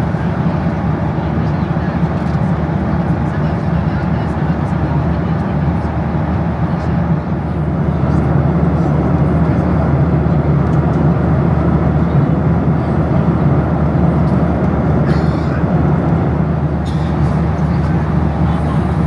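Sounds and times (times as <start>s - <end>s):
airplane cabin engine rush and hum: 0.0s - 19.0s.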